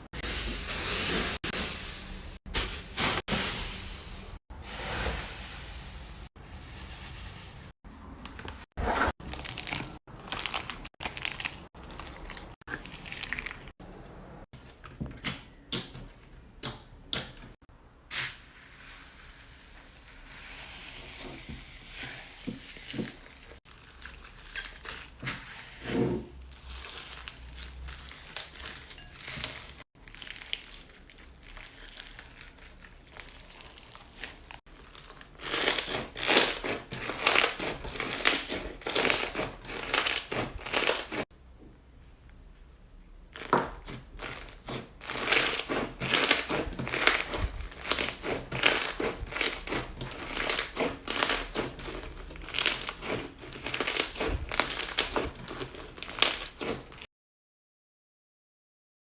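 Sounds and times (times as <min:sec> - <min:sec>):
crunchy slime squeezed by hand: 0:30.0 - 0:41.2.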